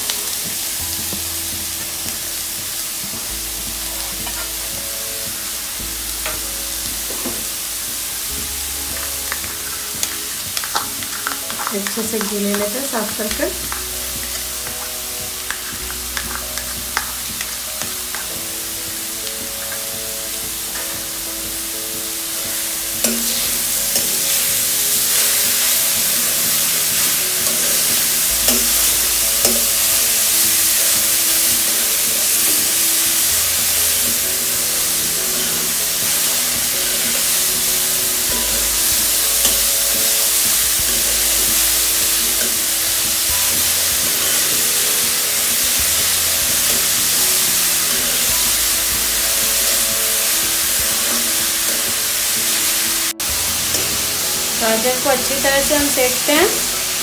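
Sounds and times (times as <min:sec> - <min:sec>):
background music: 0:00.0 - 0:57.0
carrots sizzling in hot ghee: 0:00.0 - 0:57.0
spoon stirring and scraping: 0:08.9 - 0:18.6.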